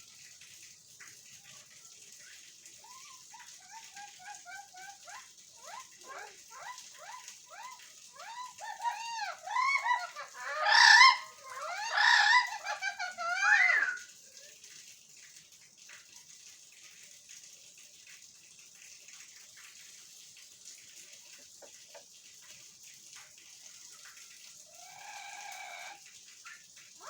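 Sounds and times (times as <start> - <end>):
parrot pitched call: 2.8 - 14.0
parrots clicking and chirping: 2.9 - 14.0.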